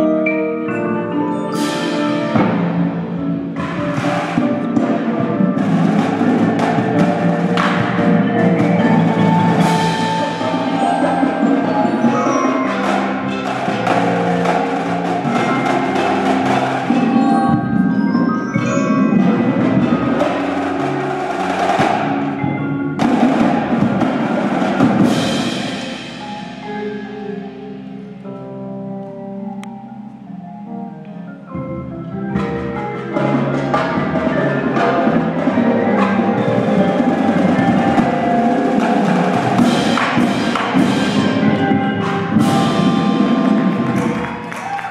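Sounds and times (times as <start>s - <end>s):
marimbas and glockenspiel melody: 0.0s - 44.8s
snare and drum hits: 3.6s - 5.0s, 5.6s - 10.5s, 39.3s - 44.9s.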